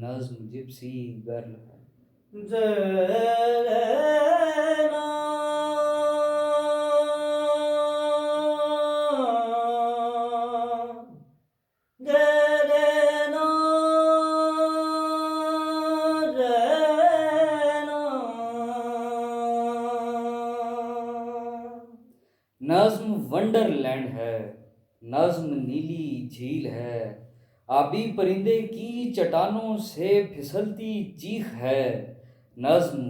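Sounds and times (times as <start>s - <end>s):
person singing wordless melody: 2.3s - 11.2s, 12.0s - 22.0s.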